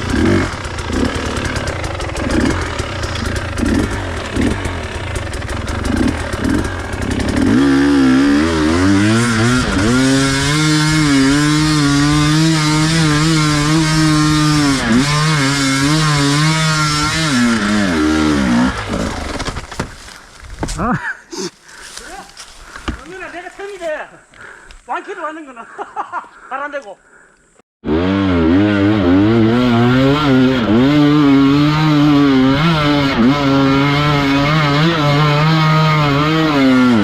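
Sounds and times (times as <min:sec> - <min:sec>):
dirt bike engine revving: 0:00.0 - 0:19.6, 0:27.8 - 0:37.0.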